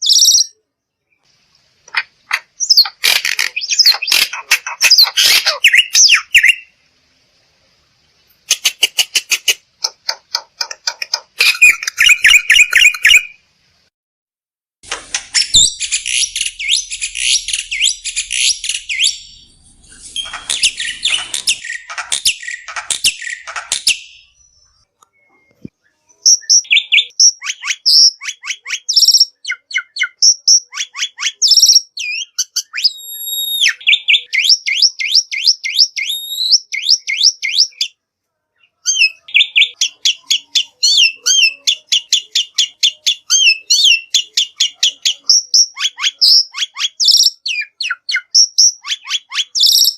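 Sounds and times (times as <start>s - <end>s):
bird whistles and chirps: 0.0s - 0.6s, 2.6s - 6.7s, 11.4s - 13.4s, 15.3s - 38.0s, 38.8s - 49.9s
bird harsh raspy chattering: 1.9s - 6.7s, 8.4s - 13.4s, 15.1s - 24.2s, 38.9s - 49.9s.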